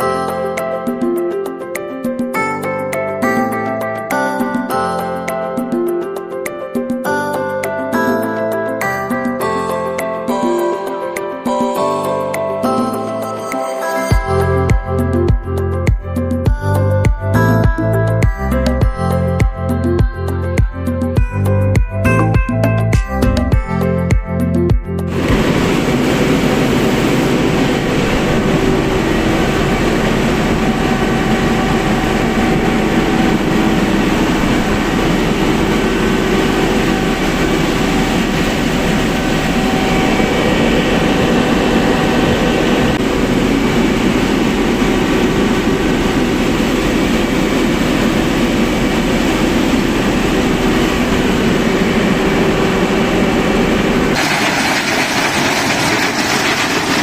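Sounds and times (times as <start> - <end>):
diesel generator engine running: 25.1 - 57.0.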